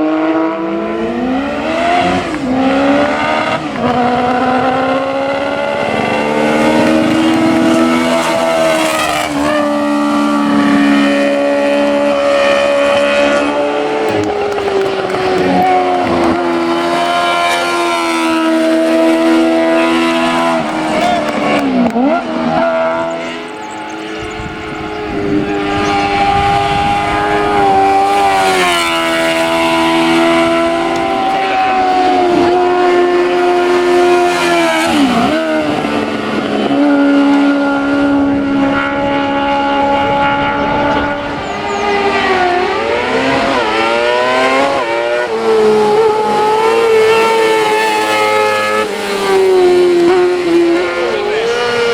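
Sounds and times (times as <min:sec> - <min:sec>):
race car engine revving: 0:00.0 - 0:51.9.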